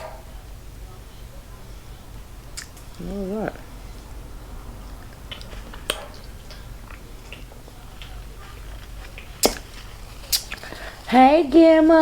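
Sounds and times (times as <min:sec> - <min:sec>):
low steady hum: 0:00.0 - 0:12.0
person chewing: 0:05.2 - 0:11.1.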